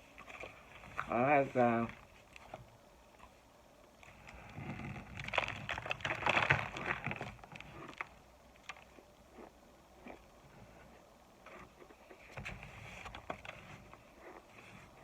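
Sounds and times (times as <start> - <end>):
crunchy chewing: 2.2 - 10.4.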